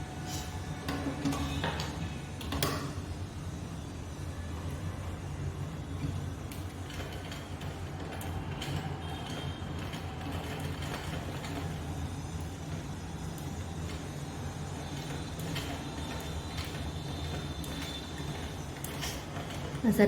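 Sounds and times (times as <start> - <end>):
sewing machine stitching: 6.5 - 20.0.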